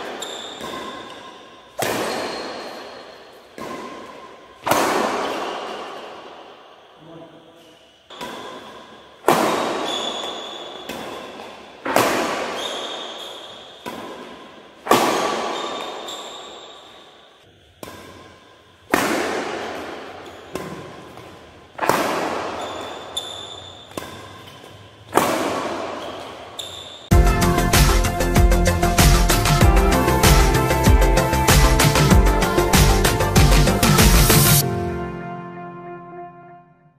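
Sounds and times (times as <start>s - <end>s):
racket striking shuttlecock: 0.0s - 6.9s, 8.1s - 26.8s.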